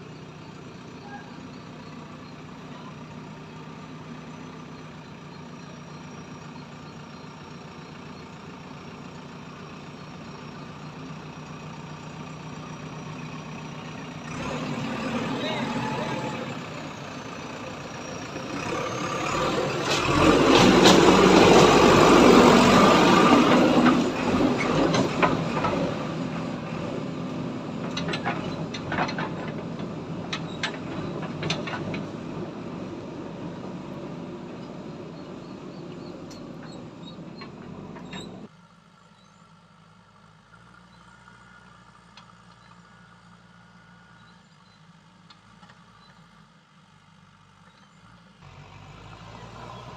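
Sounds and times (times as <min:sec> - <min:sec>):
tractor engine running under load: 0:00.0 - 0:49.9
sharp knocks and clatters: 0:23.4 - 0:26.0, 0:27.8 - 0:32.4, 0:35.9 - 0:38.5.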